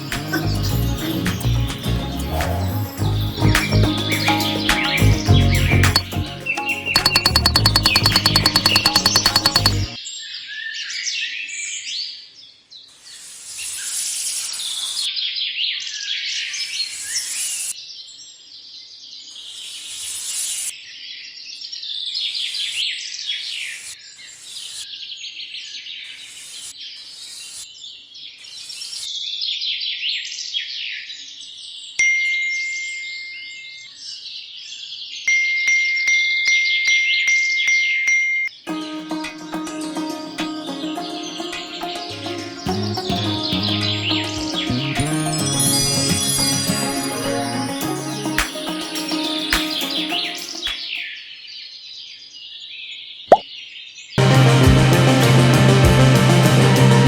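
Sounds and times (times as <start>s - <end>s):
steady high tone: 7.0s - 10.0s.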